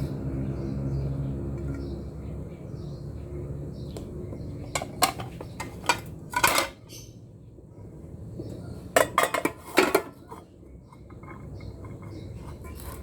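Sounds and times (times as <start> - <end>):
dishes and utensils clattering: 4.7 - 7.0, 8.9 - 13.0.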